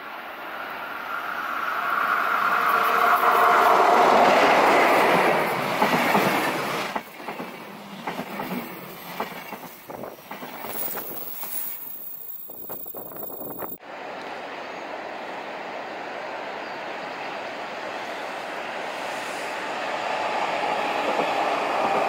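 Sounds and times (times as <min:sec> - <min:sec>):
train passing on track: 0:00.0 - 0:22.0.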